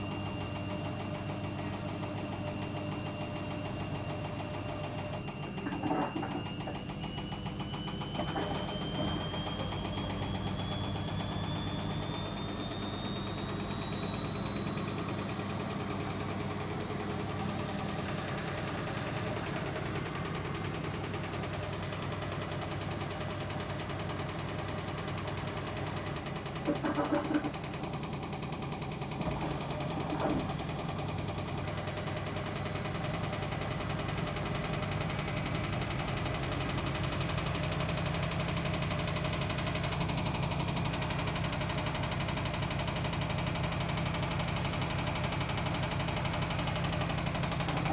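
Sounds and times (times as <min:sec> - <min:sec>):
washing machine motor whine: 0:00.0 - 0:47.9.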